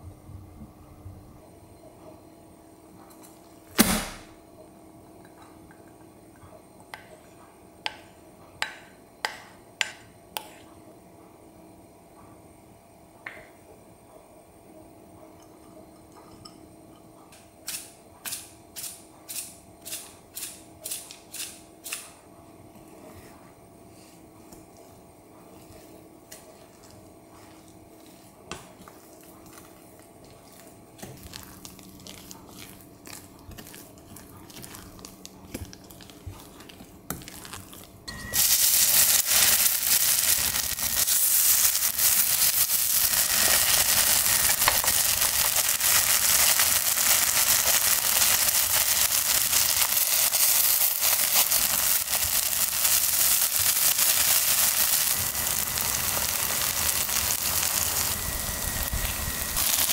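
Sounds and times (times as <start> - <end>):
batter sizzling in hot oil: 38.2 - 59.9.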